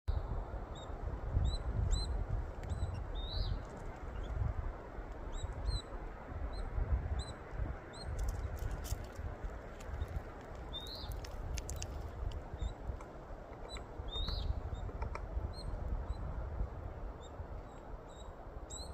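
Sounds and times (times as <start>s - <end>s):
bird chirping: 0.8s - 4.4s, 10.7s - 12.0s, 13.6s - 16.3s.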